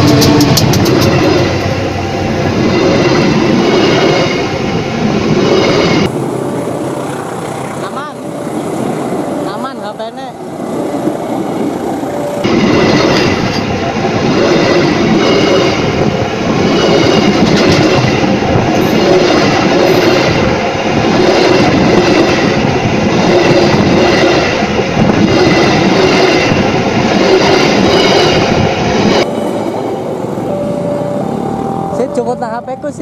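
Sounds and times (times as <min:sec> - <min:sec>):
rhythmic wheel clatter: 0:00.0 - 0:04.1
train wheels rumbling on rails: 0:00.0 - 0:33.0
high whining wheel tones: 0:29.1 - 0:33.0.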